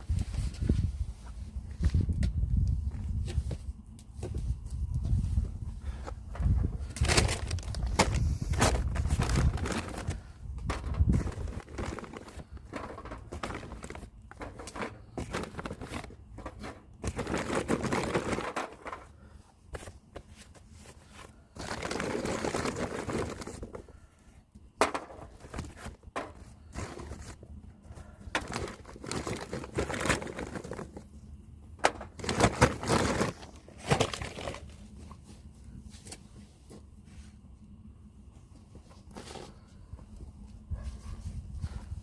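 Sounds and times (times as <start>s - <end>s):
crinkling and rustling: 0.0s - 24.0s, 24.6s - 37.5s, 38.3s - 42.0s.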